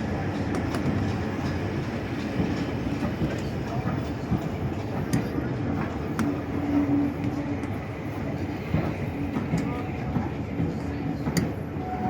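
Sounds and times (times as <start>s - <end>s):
diesel locomotive rumble: 0.0s - 12.0s
rail clicks: 0.0s - 12.0s.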